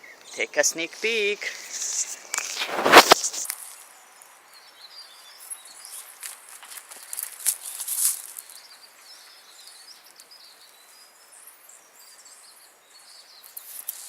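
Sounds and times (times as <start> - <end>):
small birds chirping: 0.0 - 14.0
sharp crackles: 0.9 - 3.8.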